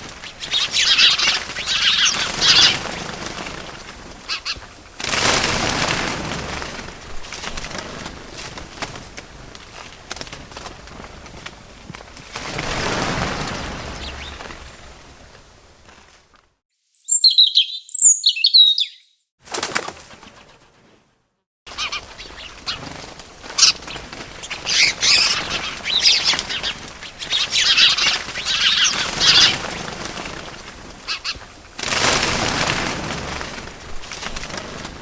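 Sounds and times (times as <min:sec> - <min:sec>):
small birds chirping: 0:00.0 - 0:04.9, 0:13.4 - 0:15.0, 0:16.8 - 0:19.3, 0:21.7 - 0:31.7
wings flapping: 0:00.0 - 0:16.5, 0:19.4 - 0:21.1, 0:21.7 - 0:35.0.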